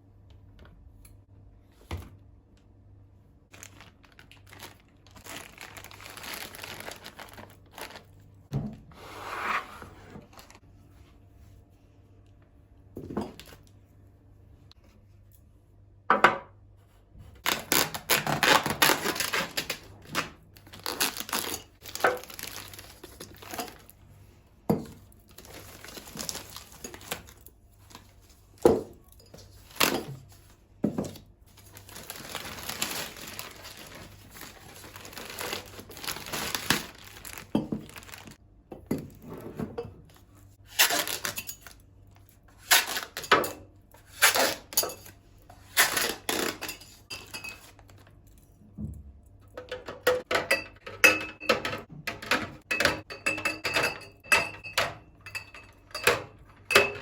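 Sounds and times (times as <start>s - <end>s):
packaging crinkling and tearing: 3.5s - 8.2s, 17.4s - 23.9s, 25.3s - 28.1s, 31.6s - 38.4s, 40.7s - 41.8s.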